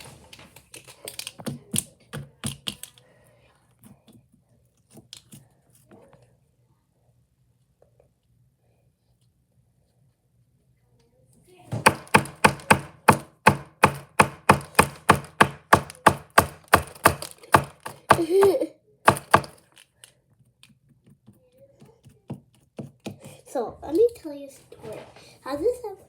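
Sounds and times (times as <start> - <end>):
sharp knocks or slaps: 11.7 - 18.2.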